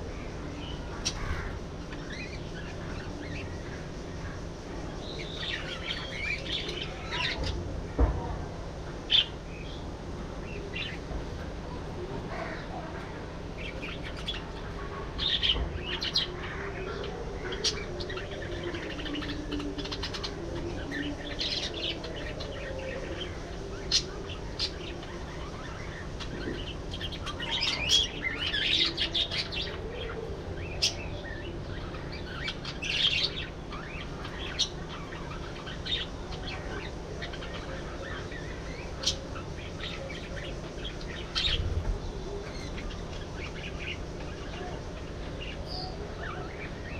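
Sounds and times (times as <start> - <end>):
steady low background noise: 0.0 - 46.9
budgerigars chirping and chattering: 13.5 - 46.9.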